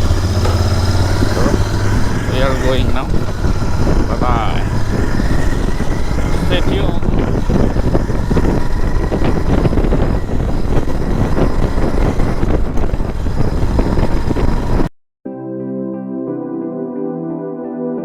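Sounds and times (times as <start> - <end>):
electric keyboard music: 0.0 - 8.1, 15.2 - 18.0
wind buffeting microphone: 0.0 - 14.9.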